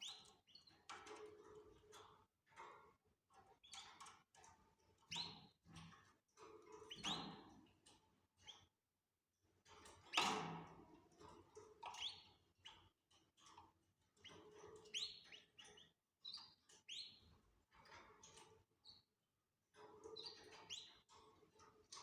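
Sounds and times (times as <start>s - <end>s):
canaries chirping: 14.3s - 17.3s, 20.1s - 21.0s.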